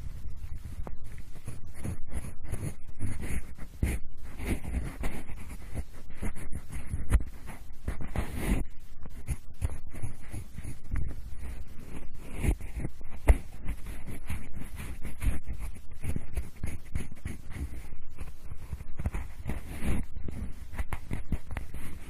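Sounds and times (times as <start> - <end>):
pencil scratching and rubbing: 0.0 - 22.0.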